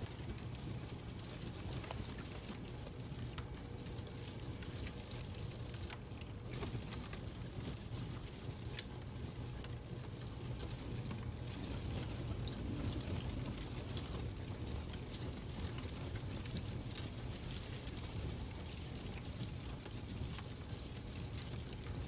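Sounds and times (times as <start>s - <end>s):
fire crackling and popping: 0.0s - 22.0s.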